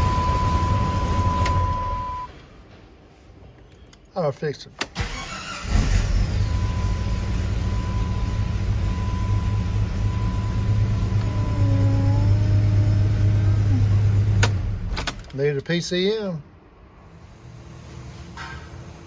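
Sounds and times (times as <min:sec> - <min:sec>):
car engine running: 0:06.2 - 0:14.9.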